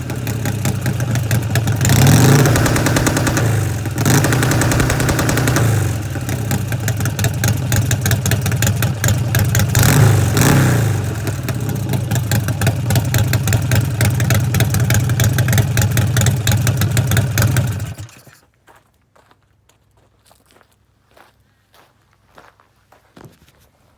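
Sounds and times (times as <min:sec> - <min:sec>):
motorcycle engine on rev limiter: 0:00.0 - 0:18.3.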